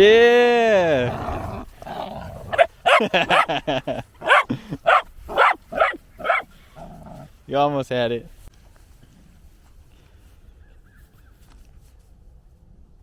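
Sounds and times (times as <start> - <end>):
dog barking: 2.5 - 3.5, 4.2 - 6.5.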